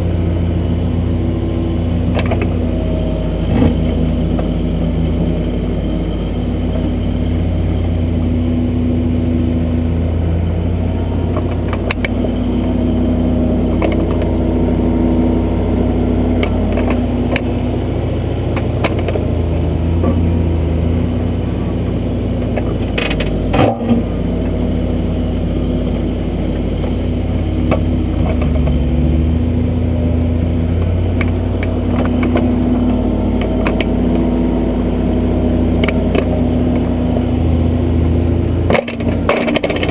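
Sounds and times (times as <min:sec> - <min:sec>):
backhoe diesel engine working: 0:00.0 - 0:39.9.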